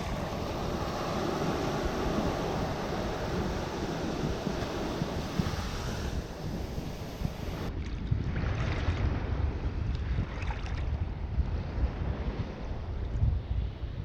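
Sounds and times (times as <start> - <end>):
sea waves washing onto beach: 0.0 - 7.8
wind buffeting microphone: 0.0 - 14.0.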